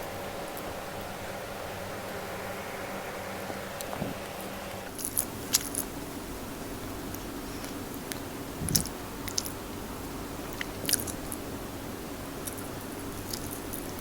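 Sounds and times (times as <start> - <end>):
chewing and biting food: 10.6 - 11.3.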